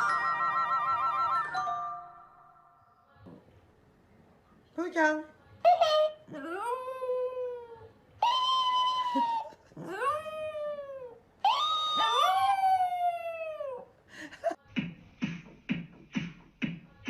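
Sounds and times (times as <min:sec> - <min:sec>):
pet animal howling: 0:06.3 - 0:13.9.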